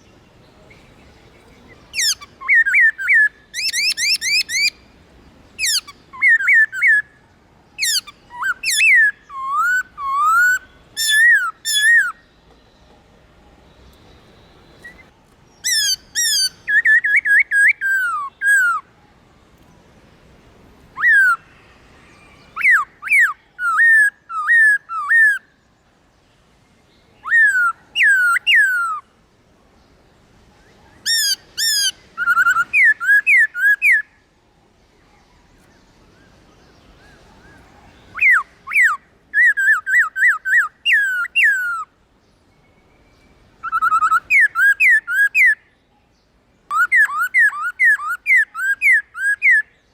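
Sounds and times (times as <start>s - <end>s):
bird singing whistled phrases: 1.9s - 4.8s, 5.6s - 7.2s, 7.8s - 12.2s, 14.7s - 18.9s, 21.0s - 25.5s, 27.2s - 29.1s, 30.9s - 34.2s, 37.0s - 41.9s, 42.6s - 45.7s, 46.7s - 49.9s.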